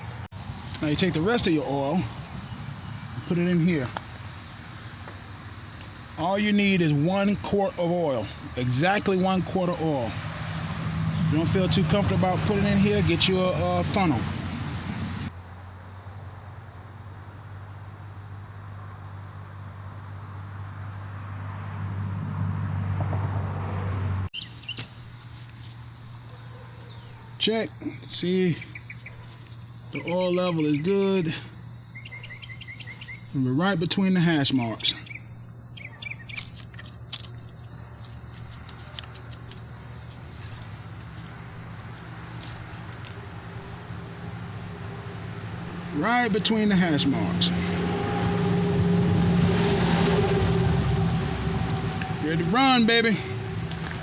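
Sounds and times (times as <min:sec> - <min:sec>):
low motor hum: 0:35.2 - 0:54.0
parts clicking and tapping: 0:36.2 - 0:41.4, 0:42.3 - 0:43.8.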